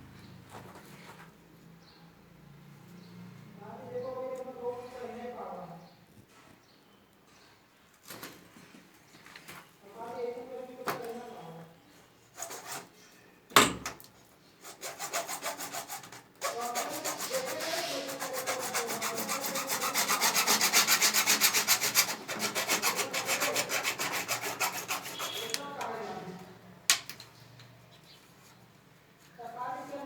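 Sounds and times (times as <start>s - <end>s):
hand saw cutting plastic pipe: 14.6s - 25.7s.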